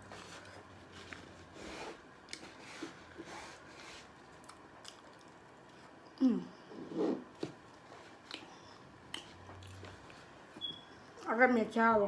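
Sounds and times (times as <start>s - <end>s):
food handling rustles and scrapes: 0.0s - 4.5s.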